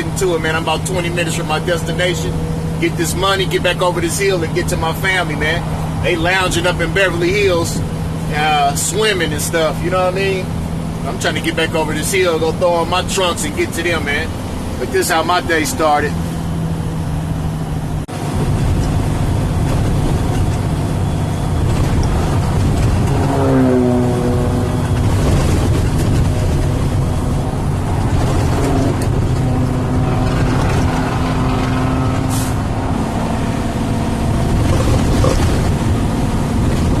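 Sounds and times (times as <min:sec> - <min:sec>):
truck engine running: 0:00.0 - 0:37.0.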